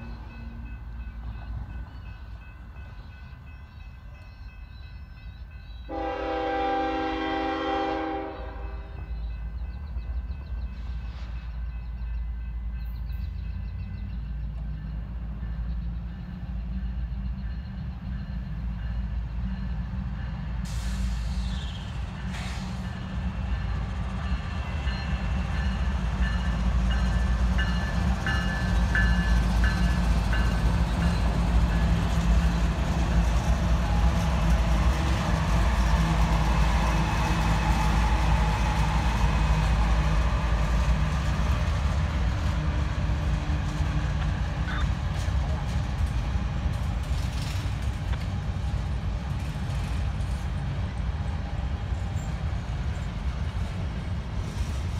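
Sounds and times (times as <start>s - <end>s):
train air horn: 5.9s - 9.0s.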